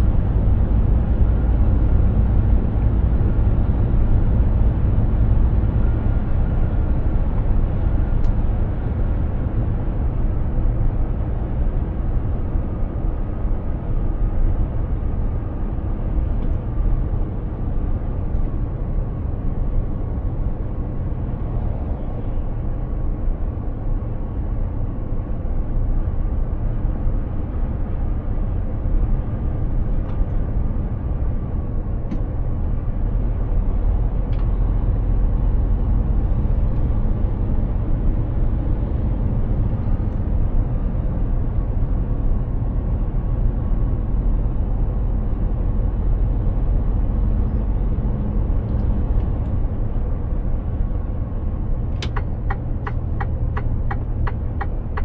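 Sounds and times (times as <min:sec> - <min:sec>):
diesel truck engine drone: 0:00.0 - 0:55.0
tyre and road noise: 0:28.0 - 0:55.0.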